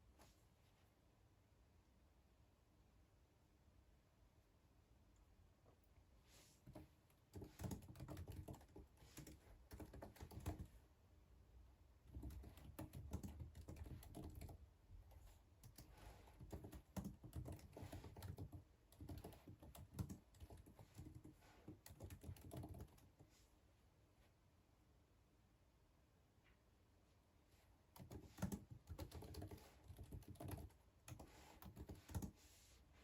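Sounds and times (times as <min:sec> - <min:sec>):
faint keyboard typing: 0:06.6 - 0:10.8, 0:12.0 - 0:23.4, 0:27.9 - 0:32.6.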